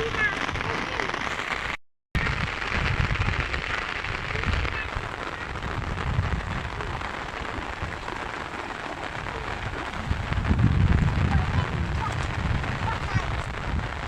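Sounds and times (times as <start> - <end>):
rain falling: 0.0 - 14.0
low rumble: 9.2 - 14.0.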